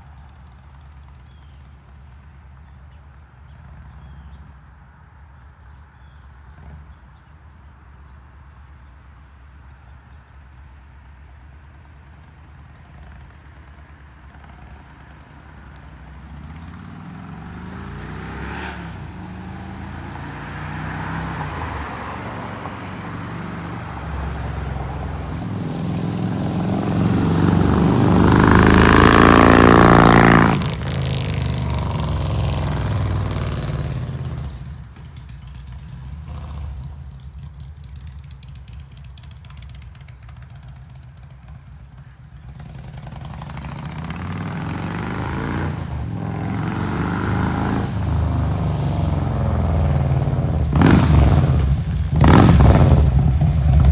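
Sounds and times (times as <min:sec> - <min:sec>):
motorcycle accelerating through gears: 0:03.5 - 0:04.6, 0:12.1 - 0:53.9.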